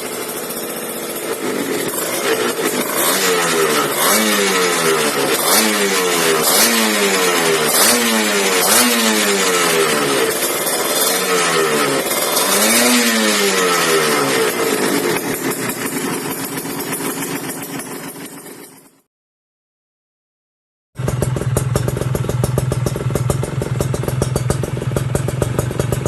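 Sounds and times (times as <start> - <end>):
two-stroke motorcycle engine revving: 0.0 - 18.9, 21.0 - 26.0.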